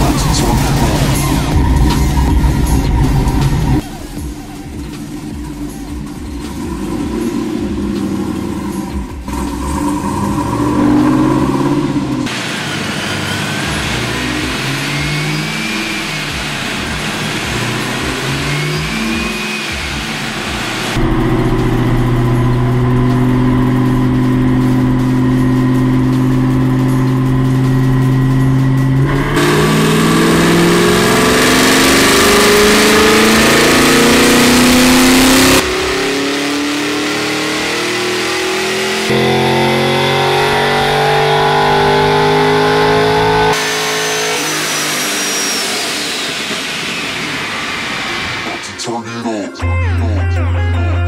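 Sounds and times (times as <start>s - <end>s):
supercharged car engine revving: 0.0s - 49.0s
high thin whine: 10.4s - 49.0s.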